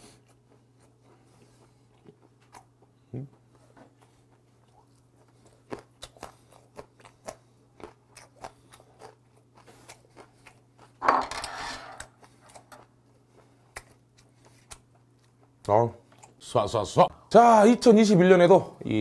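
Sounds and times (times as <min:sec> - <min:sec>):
wet chewing clicks and smacks: 0:00.2 - 0:11.0, 0:12.2 - 0:16.5.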